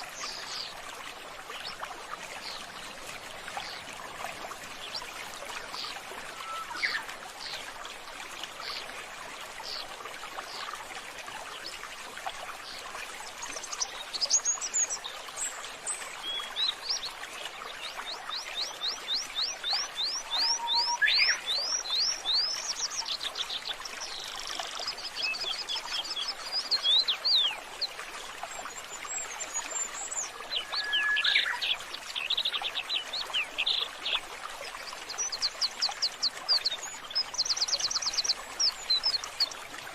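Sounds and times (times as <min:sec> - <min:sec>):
trickle of running water: 0:00.0 - 0:39.9
birds chirping and trilling: 0:29.1 - 0:34.2.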